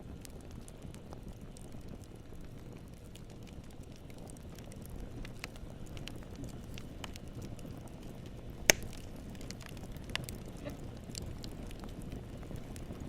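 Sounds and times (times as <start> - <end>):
wood fire crackling: 0.0 - 13.0
loud pop of burning wood: 8.6 - 11.8.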